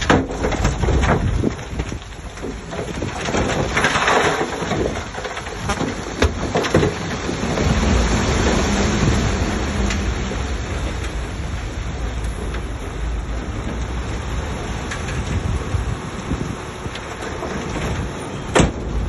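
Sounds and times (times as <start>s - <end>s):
bulldozer diesel engine under load: 0.2s - 19.0s.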